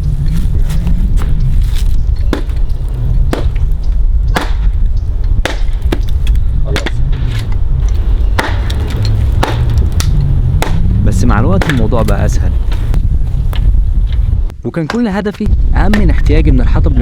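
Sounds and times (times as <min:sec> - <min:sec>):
steady low rumble: 0:00.0 - 0:14.7, 0:15.3 - 0:17.0
axe chopping firewood: 0:02.2 - 0:02.7, 0:03.3 - 0:07.6, 0:08.3 - 0:13.0.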